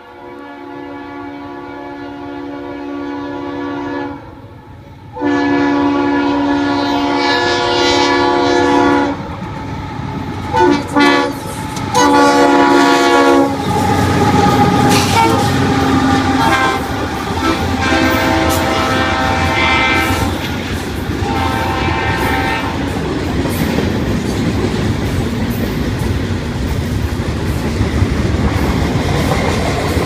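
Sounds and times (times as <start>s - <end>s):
locomotive air horn blasts: 0.0s - 4.4s, 5.1s - 9.3s, 10.5s - 20.5s, 21.1s - 22.9s
train rumbling on rails: 0.0s - 30.0s.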